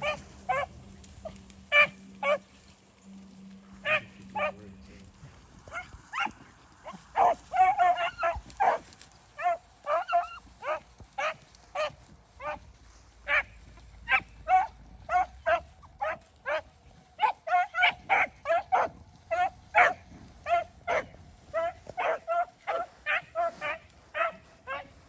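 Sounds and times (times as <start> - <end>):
dogs baying: 0.0 - 2.6, 3.7 - 25.0.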